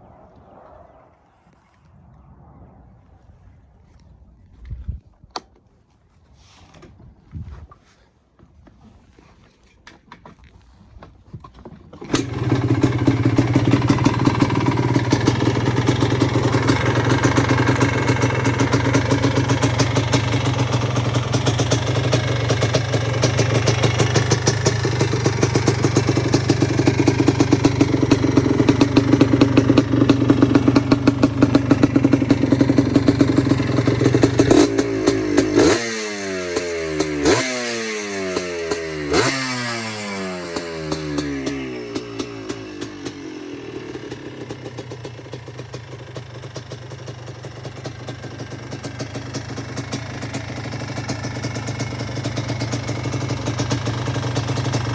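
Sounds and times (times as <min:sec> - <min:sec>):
atv engine idling and revving: 0:12.0 - 0:54.9.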